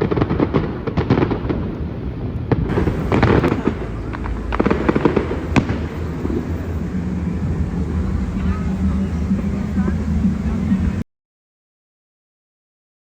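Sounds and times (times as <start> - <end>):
fireworks crackling bangs: 0.0 - 11.0
sharp firework bang: 2.5 - 9.3.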